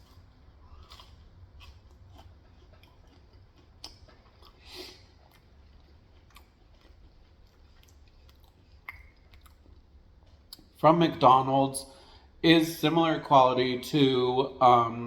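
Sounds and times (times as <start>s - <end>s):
person chewing: 0.0s - 10.8s.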